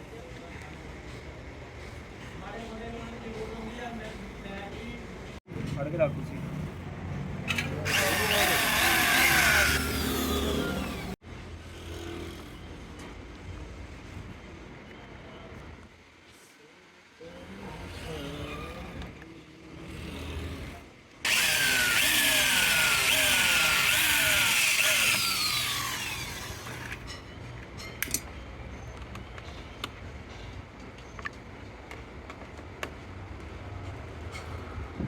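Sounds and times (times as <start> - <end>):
electric power tool running: 7.6 - 11.2, 21.3 - 27.0.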